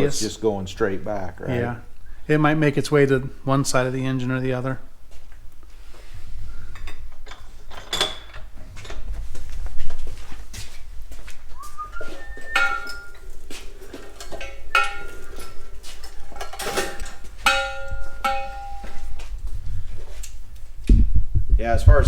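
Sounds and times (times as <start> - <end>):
metal parts clinking: 6.8 - 9.2, 12.6 - 19.2.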